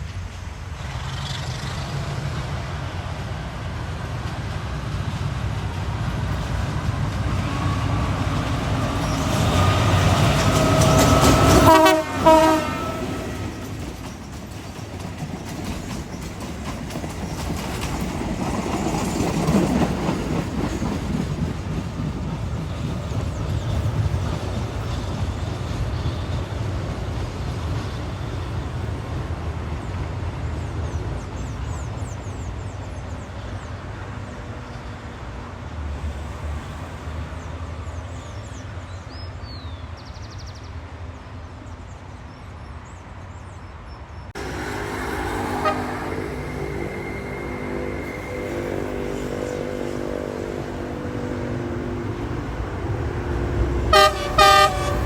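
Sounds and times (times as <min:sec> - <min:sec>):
train rumbling past: 0:00.0 - 0:55.0
train horn: 0:08.8 - 0:13.8, 0:44.4 - 0:55.0.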